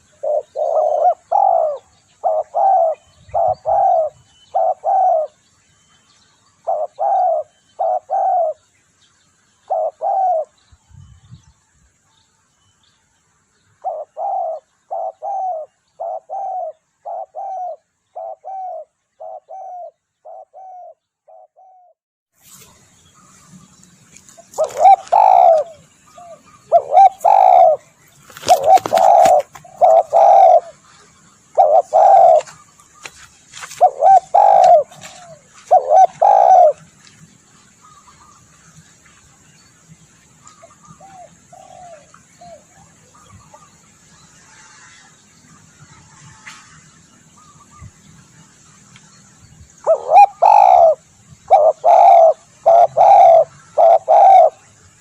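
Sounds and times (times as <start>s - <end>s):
dove cooing: 0.0s - 5.4s, 6.6s - 8.6s, 9.6s - 10.6s, 13.8s - 22.0s, 24.5s - 30.9s, 31.5s - 32.7s, 33.6s - 36.9s, 40.6s - 43.8s, 49.8s - 54.7s.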